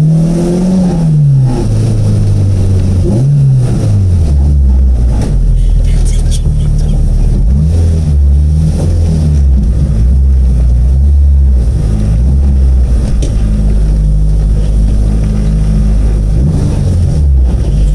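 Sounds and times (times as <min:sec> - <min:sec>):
car engine droning: 0:00.0 - 0:17.9.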